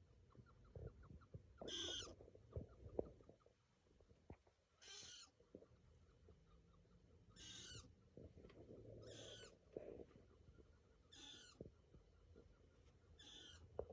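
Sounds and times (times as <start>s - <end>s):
mouse squeaking: 1.6s - 2.2s, 4.8s - 5.3s, 7.3s - 7.9s, 9.0s - 9.6s, 11.1s - 11.6s, 13.2s - 13.7s.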